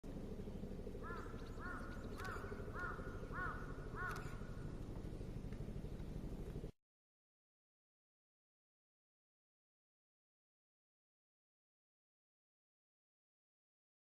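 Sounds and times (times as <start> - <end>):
steady low rumble: 0.0 - 6.8
crow cawing: 1.0 - 4.8.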